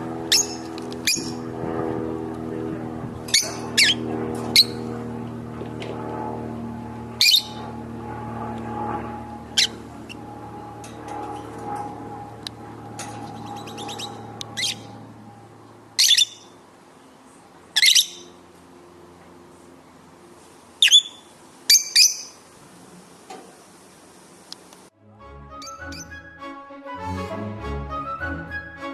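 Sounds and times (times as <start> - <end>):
low steady hum: 0.0 - 25.0
lovebird sharp calls: 0.3 - 1.4, 3.3 - 4.0, 7.2 - 7.7, 9.5 - 10.2, 13.2 - 15.0, 16.0 - 16.6, 17.8 - 18.3, 20.8 - 22.4
lovebirds chirping: 0.3 - 1.4, 3.3 - 4.0, 7.2 - 7.7, 9.5 - 11.6, 12.4 - 18.4, 20.8 - 24.8.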